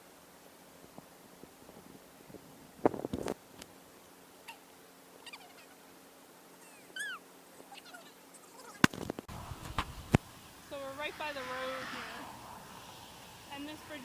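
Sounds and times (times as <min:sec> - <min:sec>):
faint animal calls: 0:04.4 - 0:09.0.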